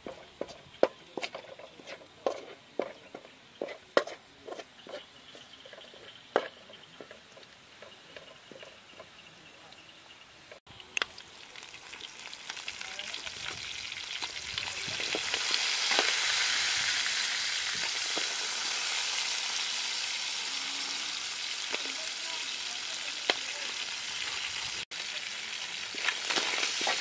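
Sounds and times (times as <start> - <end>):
crab sizzling in a wok: 10.7 - 27.0.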